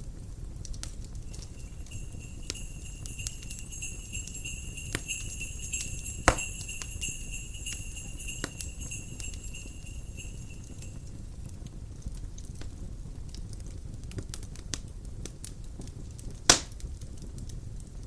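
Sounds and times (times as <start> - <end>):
fireplace crackling and popping: 0.6 - 18.0
small sleigh bells shaking: 1.2 - 11.2
low rumble of fire and wind: 10.2 - 18.0.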